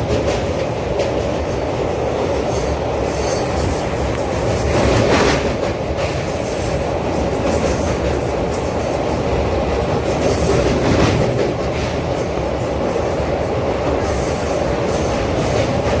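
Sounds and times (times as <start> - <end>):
train wheels rumbling on rails: 0.0 - 16.0
high wheel squeal: 2.5 - 5.1.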